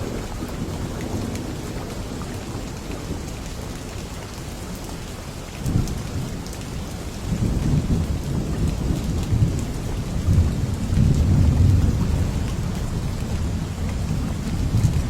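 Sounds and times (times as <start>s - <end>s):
steady rain with drop ticks: 0.0s - 15.0s
low thunder rumbling: 5.7s - 15.0s.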